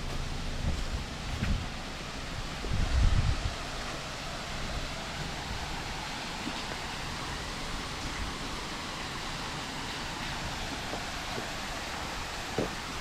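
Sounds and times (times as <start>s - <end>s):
wind gust on microphone: 0.6s - 6.9s
waterfall rushing: 1.1s - 13.0s.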